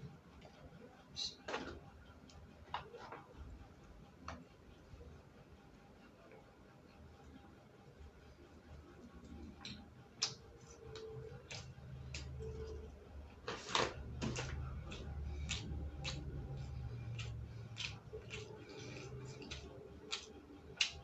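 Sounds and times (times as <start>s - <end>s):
steady low hum: 0.0s - 21.0s
person chewing crunchy food: 14.2s - 21.0s.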